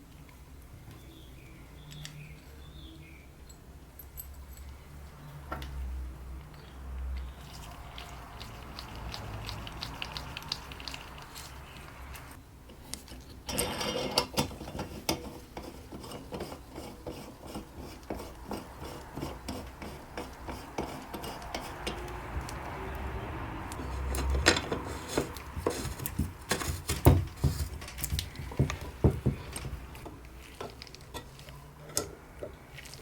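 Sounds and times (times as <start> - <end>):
small metal parts clicking and scraping: 6.4 - 16.8, 29.4 - 33.0.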